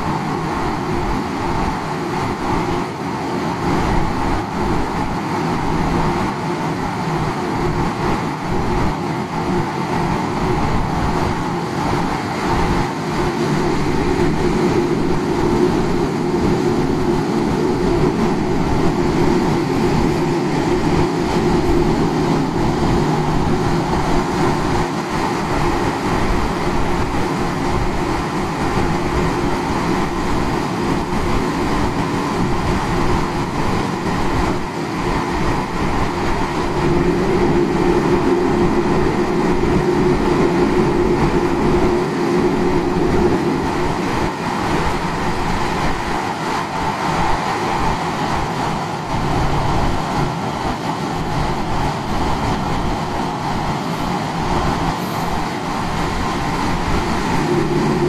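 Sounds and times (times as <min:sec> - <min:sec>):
train hum: 0:00.0 - 0:58.0
train rail noise: 0:00.0 - 0:58.0.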